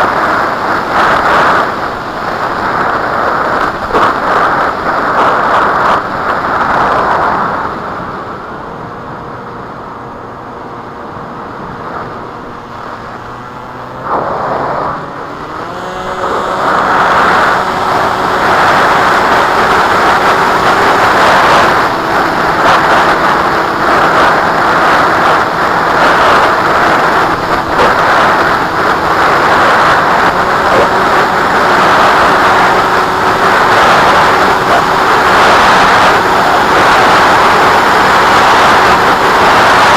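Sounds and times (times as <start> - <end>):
wind rushing over microphone: 0.0 - 39.9
model aircraft motor whine: 12.0 - 39.8.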